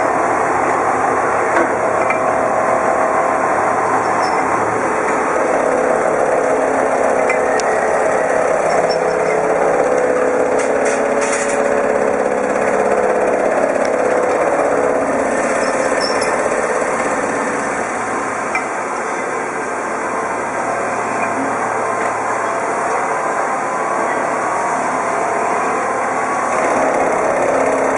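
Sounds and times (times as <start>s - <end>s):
lathe humming: 0.0s - 27.9s.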